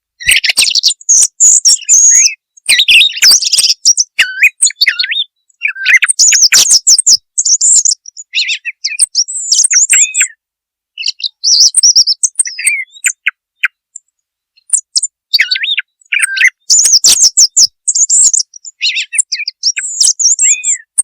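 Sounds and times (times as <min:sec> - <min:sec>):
song thrush singing: 0:00.0 - 0:21.0.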